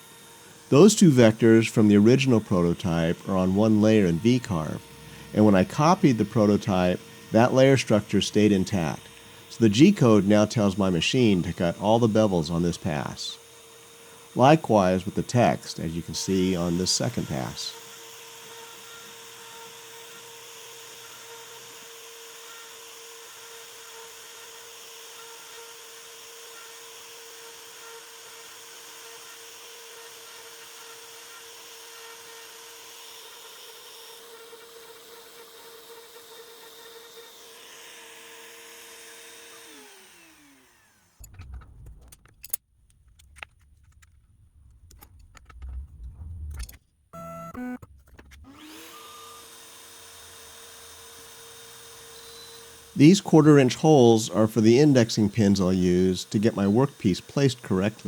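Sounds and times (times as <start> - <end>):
router spindle whining: 0.0 - 58.0
low rumbles: 41.2 - 46.8
sharp clicks and knocks: 41.2 - 46.9, 47.5 - 48.6.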